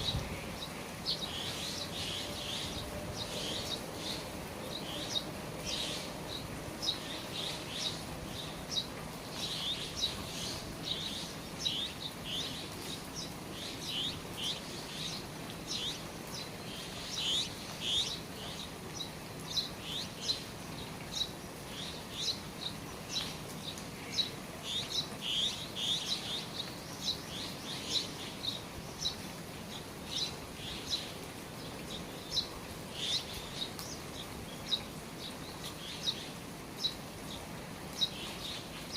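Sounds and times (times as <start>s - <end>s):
rain falling from eaves: 0.0s - 38.9s
small birds chirping: 0.0s - 38.9s.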